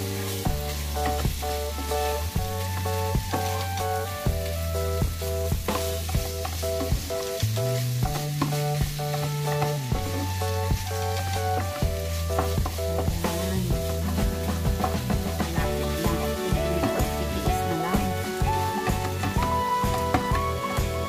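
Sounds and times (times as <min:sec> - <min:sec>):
background music with beat: 0:00.0 - 0:21.0
meat sizzling in a frying pan: 0:00.0 - 0:21.0
spatula stirring in a pan: 0:00.0 - 0:21.0.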